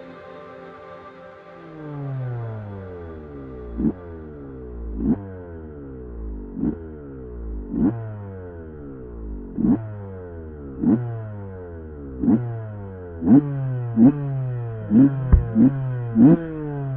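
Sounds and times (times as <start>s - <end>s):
dirt bike engine revving: 3.8s - 8.3s, 9.5s - 10.1s, 10.8s - 11.5s, 12.1s - 16.9s.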